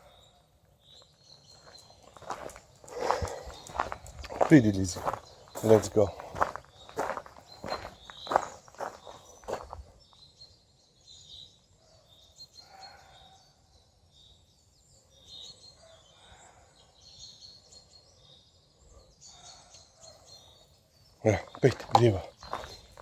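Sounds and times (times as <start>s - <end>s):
lower bird calls: 0.0s - 9.8s
high bird chirps: 0.0s - 11.5s, 20.2s - 23.0s.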